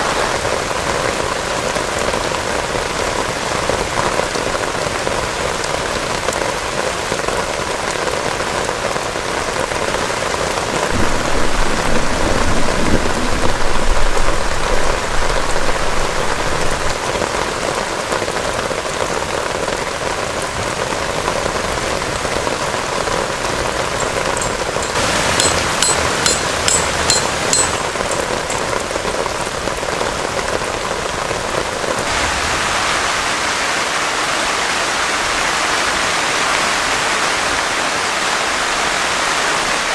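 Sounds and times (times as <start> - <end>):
heavy rain falling: 0.0 - 39.9
low rumble: 11.0 - 17.0.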